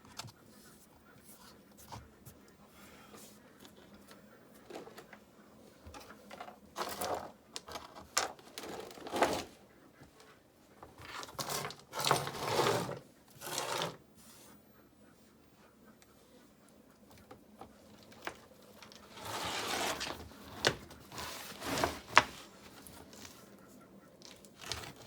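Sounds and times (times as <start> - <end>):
scraping and rubbing of rock: 11.0 - 14.0, 17.9 - 23.4, 24.2 - 25.0.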